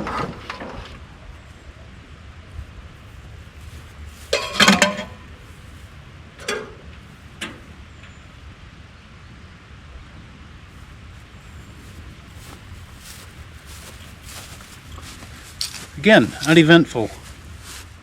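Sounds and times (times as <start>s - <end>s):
metal parts clinking: 4.4s - 5.3s.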